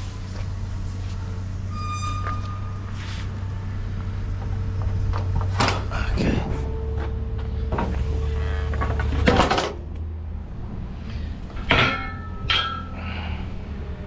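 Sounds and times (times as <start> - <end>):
low engine hum: 0.0 - 14.0
metal clanks and knocks: 4.4 - 9.9, 11.5 - 13.1.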